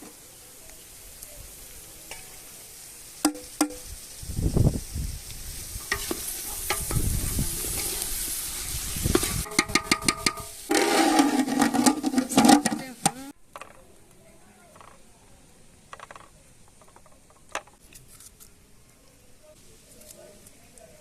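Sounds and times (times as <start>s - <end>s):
food sizzling in a pan: 0.0s - 13.4s
utensil clicking and scraping pan: 9.1s - 13.2s.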